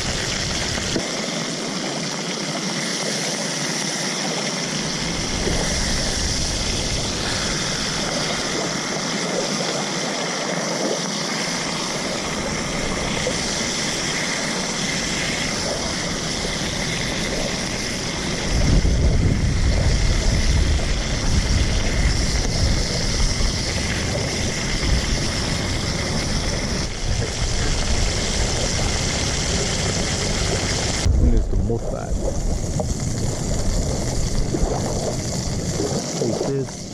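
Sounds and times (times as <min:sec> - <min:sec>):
low rumble: 0:04.8 - 0:08.8, 0:11.8 - 0:36.9.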